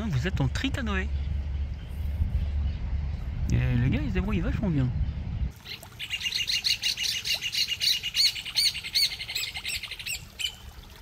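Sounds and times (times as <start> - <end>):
birds calling high notes: 4.8 - 10.7.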